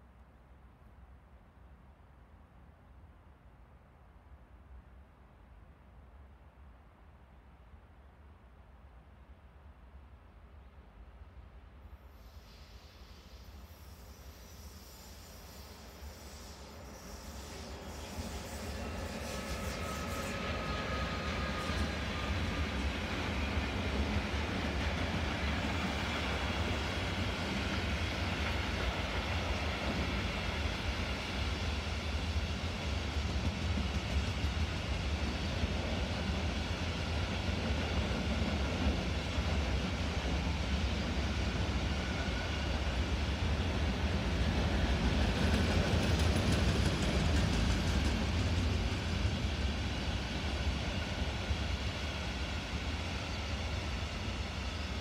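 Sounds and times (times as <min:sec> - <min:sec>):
steel wheels rumbling on rail: 0:12.5 - 0:55.0.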